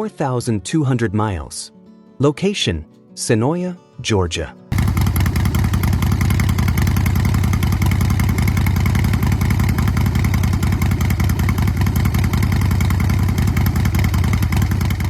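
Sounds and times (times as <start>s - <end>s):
motorcycle engine idling: 4.7s - 15.0s.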